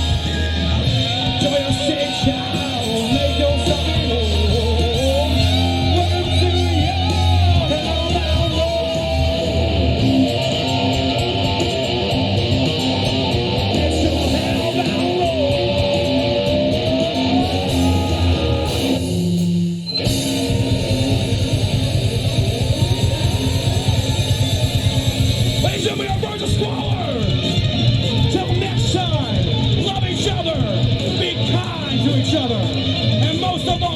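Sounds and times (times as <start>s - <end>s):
distorted electric guitar lead: 0.0s - 33.9s
rock band playing: 0.0s - 33.9s.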